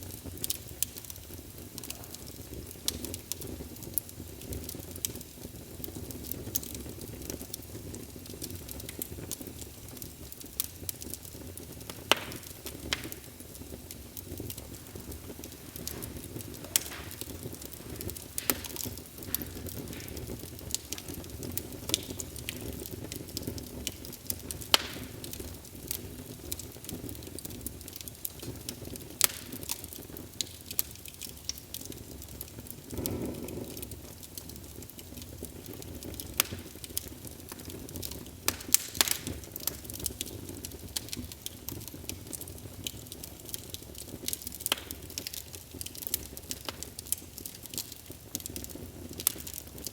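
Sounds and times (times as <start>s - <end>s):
fire crackles and pops: 0.0s - 49.9s
fire flame rumble: 0.0s - 49.9s
fire whoosh: 12.3s - 22.0s.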